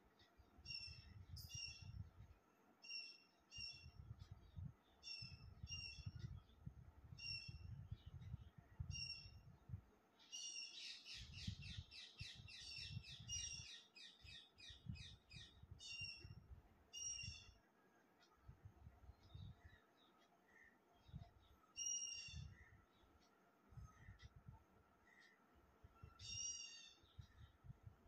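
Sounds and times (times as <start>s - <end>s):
small bird chirping: 0.2s - 2.2s, 2.8s - 9.5s, 10.2s - 17.7s, 19.1s - 23.3s, 26.0s - 27.7s.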